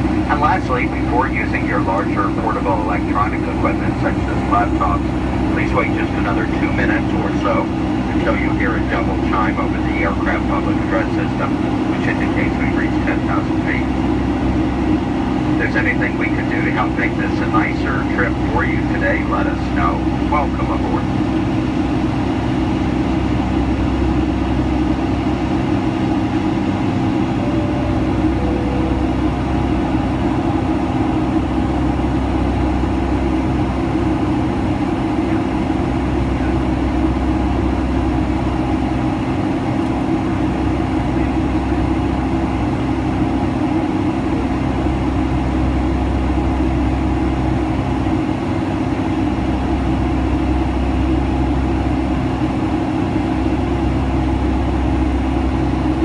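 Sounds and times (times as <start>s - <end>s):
airplane cabin engine drone: 0.0s - 56.0s
two-note chime tone: 27.3s - 30.2s.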